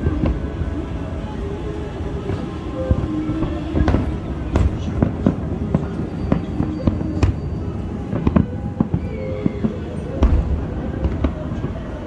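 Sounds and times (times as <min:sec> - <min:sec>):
continuous low rumble: 0:00.0 - 0:12.0
fireworks bangs and crackles: 0:00.0 - 0:12.0.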